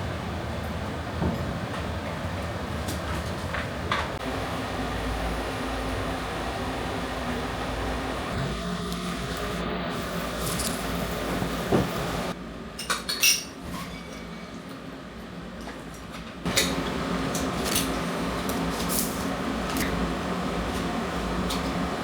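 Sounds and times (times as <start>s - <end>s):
room hum: 0.0s - 22.0s
tableware clinking: 12.8s - 14.2s.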